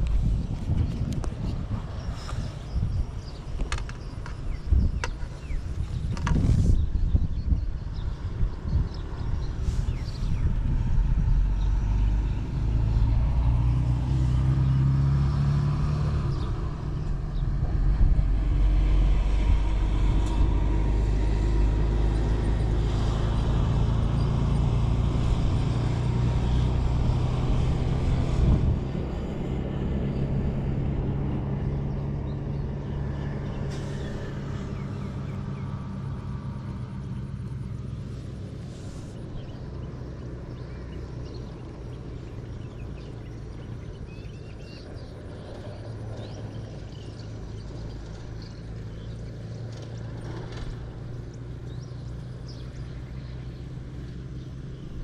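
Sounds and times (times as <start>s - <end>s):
engine humming steadily: 0.0s - 55.0s.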